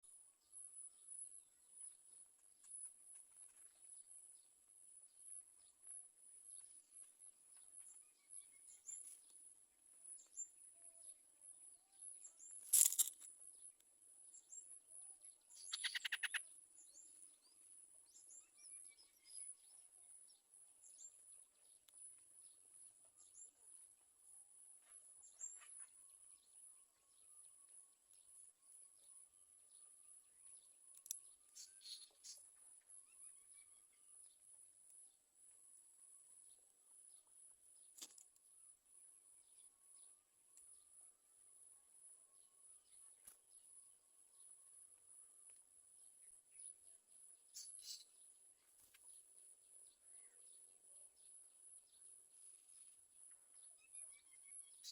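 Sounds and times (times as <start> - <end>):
faint bird chirps: 0.0 - 54.9.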